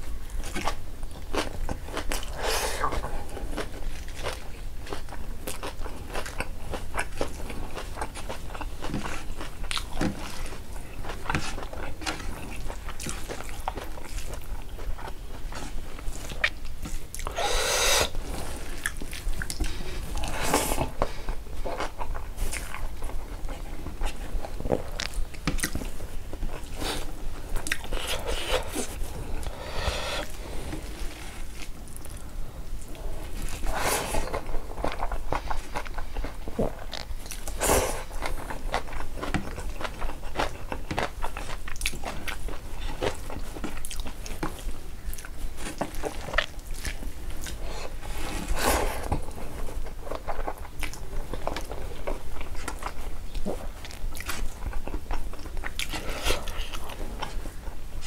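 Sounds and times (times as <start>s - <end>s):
food crunching: 0.3s - 57.7s
chewing with wet mouth clicks: 18.8s - 20.3s, 21.6s - 26.8s, 27.6s - 28.5s, 34.2s - 47.7s, 49.8s - 57.4s.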